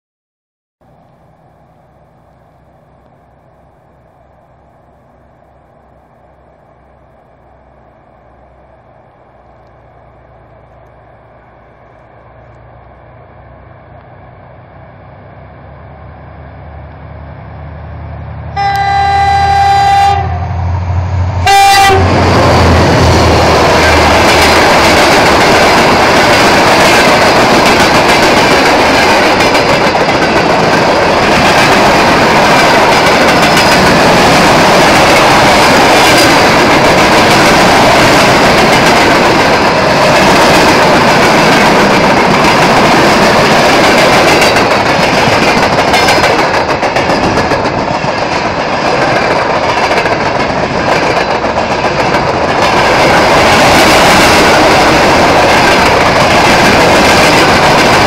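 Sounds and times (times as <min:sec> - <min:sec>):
diesel locomotive engine: 0:00.8 - 0:58.0
locomotive horn blasts: 0:18.5 - 0:20.6, 0:21.4 - 0:22.3.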